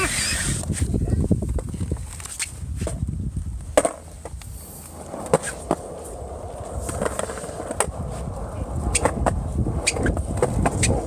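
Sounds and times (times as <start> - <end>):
skateboard wheels rumbling: 0.0 - 11.0
skateboard clacks: 3.7 - 11.0.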